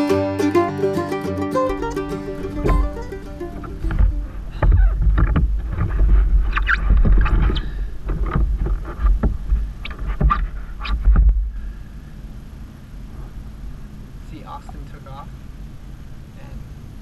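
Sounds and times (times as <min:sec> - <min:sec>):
paddle knocking on hull: 0:02.6 - 0:03.1, 0:03.8 - 0:06.2
wind rumbling on microphone: 0:02.6 - 0:17.0.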